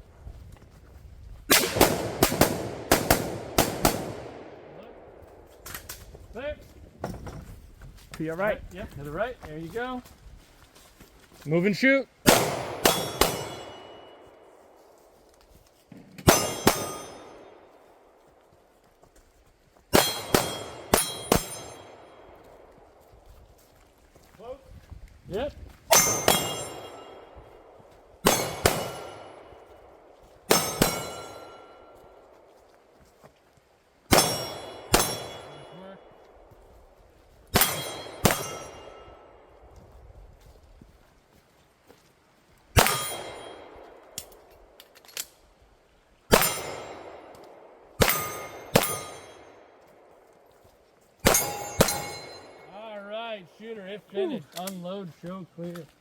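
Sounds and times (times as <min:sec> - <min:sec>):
gunshots: 0:01.5 - 0:05.0, 0:12.2 - 0:14.0, 0:16.2 - 0:17.6, 0:19.9 - 0:22.0, 0:28.2 - 0:29.6, 0:34.1 - 0:35.7, 0:37.5 - 0:39.0, 0:42.8 - 0:43.7, 0:46.3 - 0:47.3, 0:48.0 - 0:49.6, 0:51.2 - 0:52.7
steel targets ringing: 0:12.8 - 0:14.2, 0:16.2 - 0:17.6, 0:20.0 - 0:22.2, 0:25.9 - 0:27.3, 0:28.3 - 0:29.5, 0:30.5 - 0:32.0, 0:34.1 - 0:36.1, 0:37.6 - 0:39.3, 0:42.8 - 0:43.8, 0:46.3 - 0:47.2, 0:48.0 - 0:49.6, 0:51.2 - 0:52.7.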